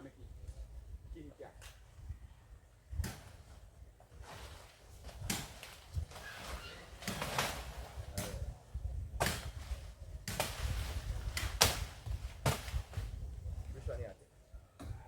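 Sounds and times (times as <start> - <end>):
blade chopping tree limb: 3.0 - 3.6, 4.2 - 8.5, 9.2 - 13.1.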